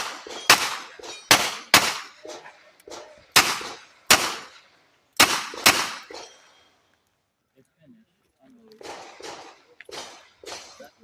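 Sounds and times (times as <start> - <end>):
gunshots: 0.0 - 4.6, 5.2 - 6.3, 8.8 - 11.0.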